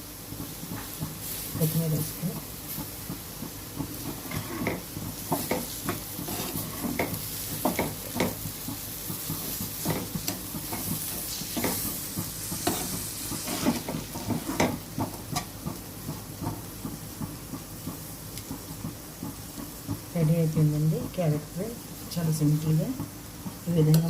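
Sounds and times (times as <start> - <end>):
food sizzling: 0.0 - 24.0
spoon scraping in a pan: 4.0 - 8.4, 9.4 - 14.8.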